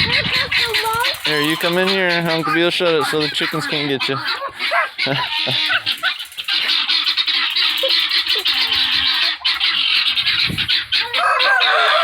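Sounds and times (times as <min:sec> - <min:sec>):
guinea fowl and chickens calling: 0:00.0 - 0:12.0
rooster crowing: 0:11.0 - 0:12.0.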